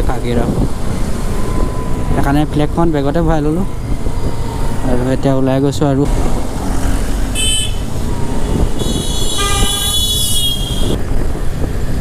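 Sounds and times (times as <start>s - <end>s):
vehicle horns honking: 7.3s - 11.0s.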